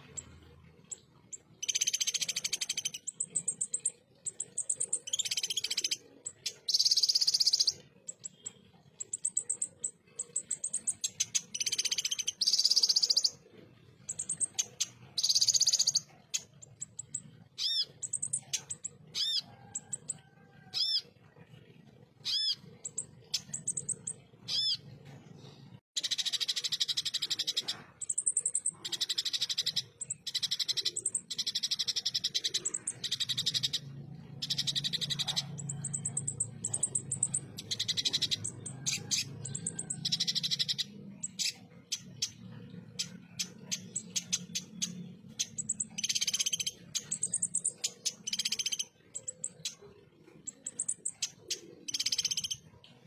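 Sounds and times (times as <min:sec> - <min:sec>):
sunbird song with fast trills: 0:00.0 - 0:21.1, 0:22.2 - 0:24.9, 0:26.0 - 0:52.9
sharp bird chirps: 0:01.6 - 0:13.4, 0:26.0 - 0:52.7.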